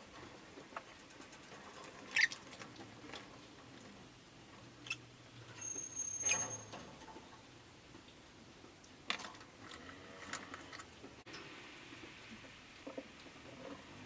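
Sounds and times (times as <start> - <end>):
thin high whistle: 5.6 - 6.7.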